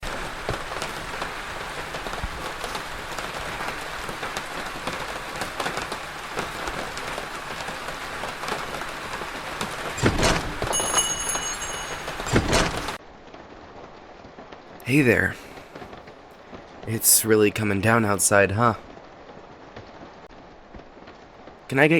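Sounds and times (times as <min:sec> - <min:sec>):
steady rain falling: 0:00.0 - 0:21.9
small bell chiming: 0:10.7 - 0:12.3.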